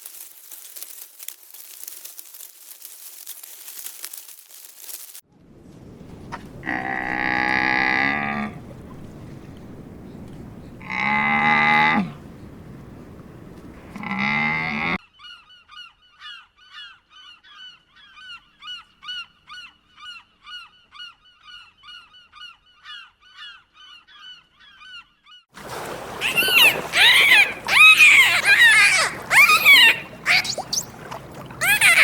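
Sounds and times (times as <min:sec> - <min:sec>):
cow mooing: 0:06.6 - 0:08.6, 0:10.8 - 0:12.2, 0:13.8 - 0:15.0
geese honking: 0:26.2 - 0:32.0.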